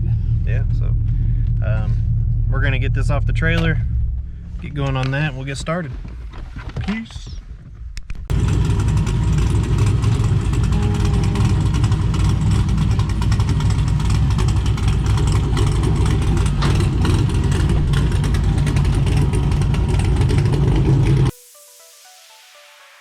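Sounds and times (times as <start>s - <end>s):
vehicle engine rumbling: 0.0s - 21.3s
faint electronic music: 21.3s - 23.0s.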